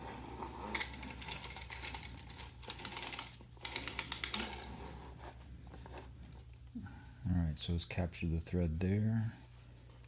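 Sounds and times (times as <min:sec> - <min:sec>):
knitting machine needles clicking: 0:00.8 - 0:04.6.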